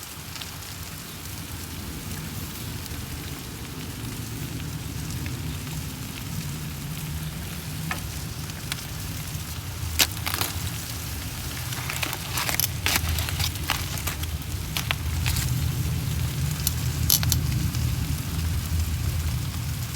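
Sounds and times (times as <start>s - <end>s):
food sizzling on a grill: 0.0s - 19.9s
sharp crackles and pops: 5.0s - 19.9s.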